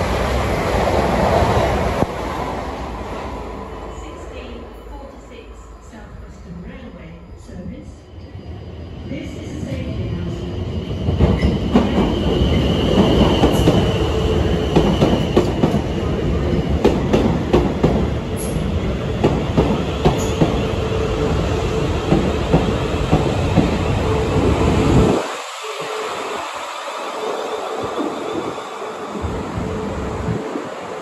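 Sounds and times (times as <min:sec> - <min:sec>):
electric train whine: 0:00.0 - 0:31.0.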